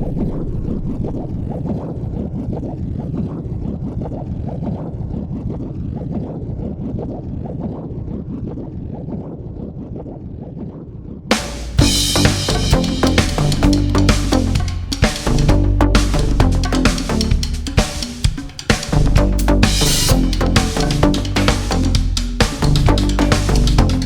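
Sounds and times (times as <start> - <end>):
music with drums: 11.3 - 24.0.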